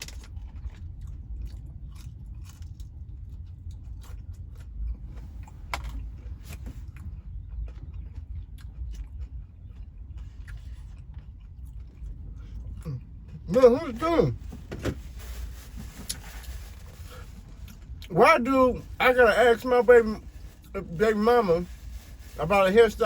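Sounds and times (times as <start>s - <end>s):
clicks and rustles of eating: 0.0s - 13.4s
low steady rumble: 0.0s - 23.0s.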